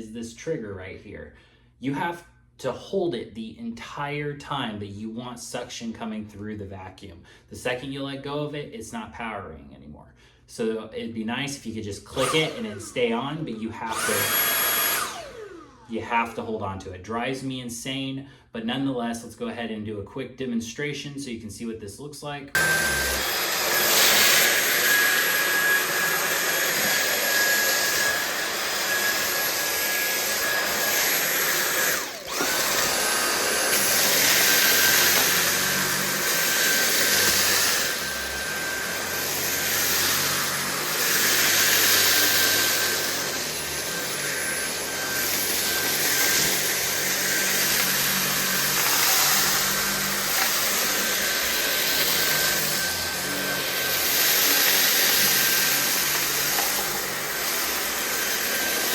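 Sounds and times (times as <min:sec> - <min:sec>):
cordless vacuum motor whine: 0:12.1 - 0:13.2, 0:13.9 - 0:15.9, 0:22.6 - 0:58.9
vacuum rushing on rug: 0:12.1 - 0:15.9, 0:22.6 - 0:58.9.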